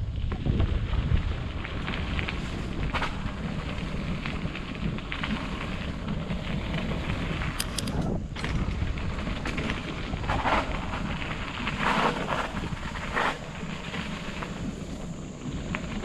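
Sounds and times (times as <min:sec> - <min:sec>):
tyre and trail noise: 0:00.0 - 0:16.0
wind buffeting microphone: 0:00.0 - 0:16.0
sharp clicks: 0:07.6 - 0:08.2.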